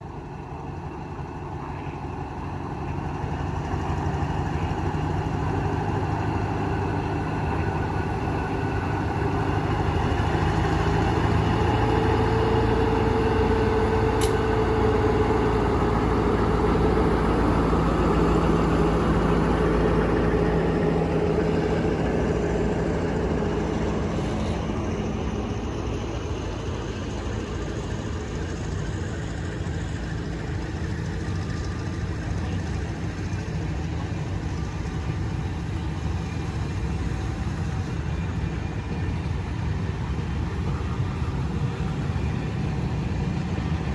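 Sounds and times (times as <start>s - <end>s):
diesel train engine running: 0.0s - 43.9s
short sharp click: 14.2s - 14.4s.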